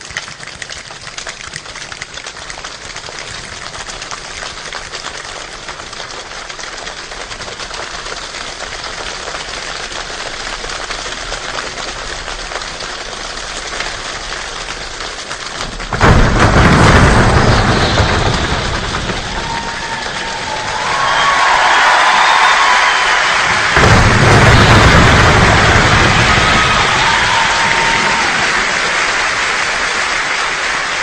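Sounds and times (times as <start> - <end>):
deep rumble: 15.6 - 21.4, 23.4 - 29.3.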